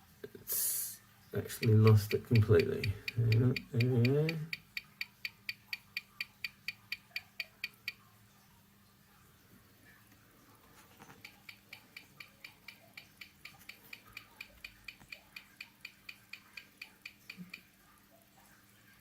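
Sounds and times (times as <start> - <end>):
watch ticking: 1.4 - 8.0, 11.1 - 17.8.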